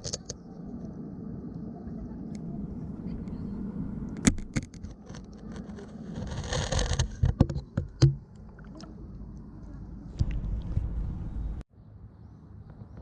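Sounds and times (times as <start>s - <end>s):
muffled underwater rumble: 0.4s - 6.1s.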